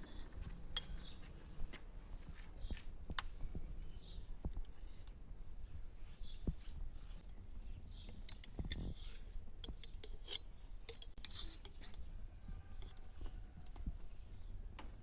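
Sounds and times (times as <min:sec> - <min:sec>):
utensils clinking against dishes: 0:08.2 - 0:12.1.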